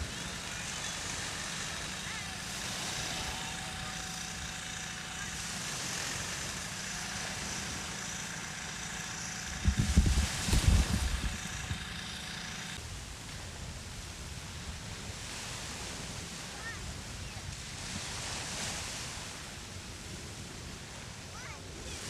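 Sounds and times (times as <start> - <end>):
outdoor background noise: 0.0 - 22.0
low rumbling thumps: 9.5 - 11.8.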